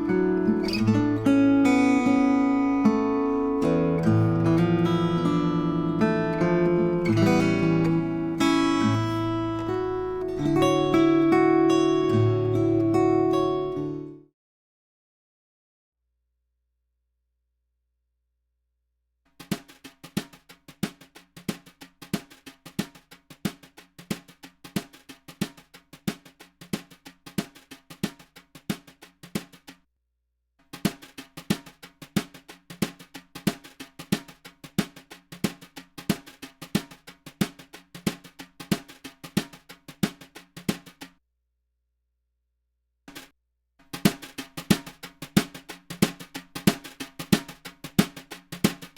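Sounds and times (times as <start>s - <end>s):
drum kit kick and snare beat: 19.4s - 29.8s, 30.7s - 41.2s, 43.1s - 48.9s.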